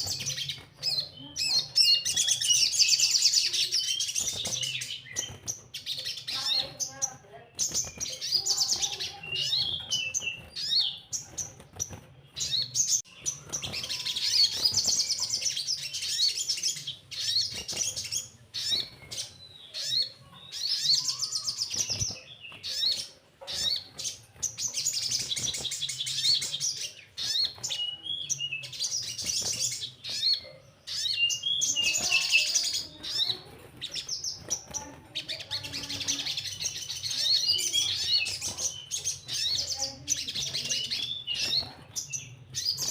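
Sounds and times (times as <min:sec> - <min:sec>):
songbird twittering trills: 0:00.0 - 0:42.9.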